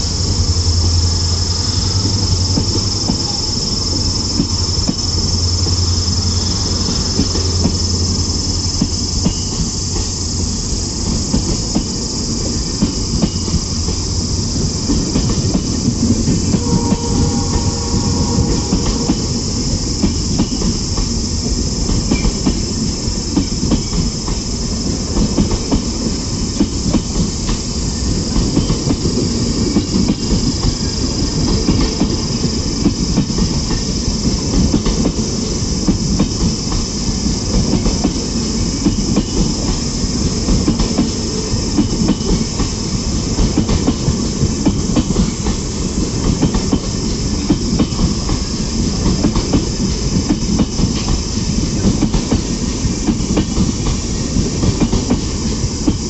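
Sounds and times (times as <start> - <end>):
high hiss: 0.0 - 25.2
train rail rumble: 0.0 - 56.0.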